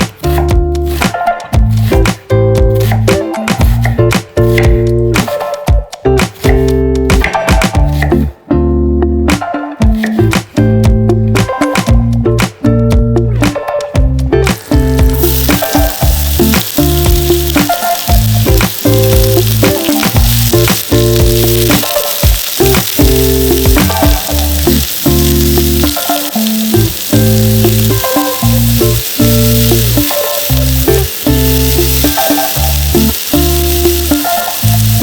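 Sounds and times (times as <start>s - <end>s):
food sizzling in a pan: 0.0s - 2.2s, 14.5s - 35.0s
background music with bass notes: 0.0s - 35.0s.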